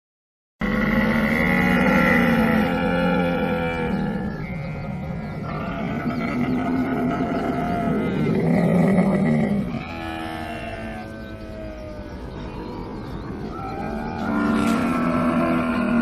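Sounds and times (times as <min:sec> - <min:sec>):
camel calling: 0:00.6 - 0:16.0.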